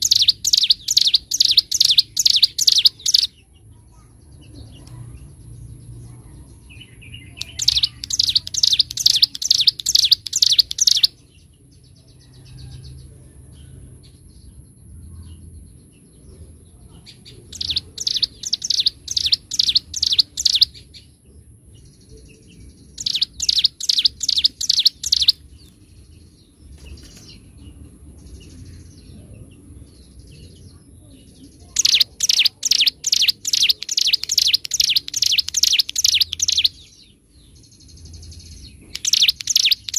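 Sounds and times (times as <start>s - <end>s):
soft bird twittering: 0.0s - 39.9s.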